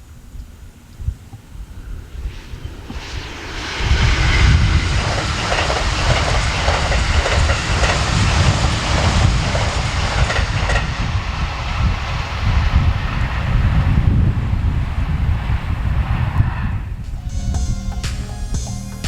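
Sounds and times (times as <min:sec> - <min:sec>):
train rushing past: 0:01.7 - 0:19.0
wheels clacking over rail joints: 0:04.9 - 0:10.9.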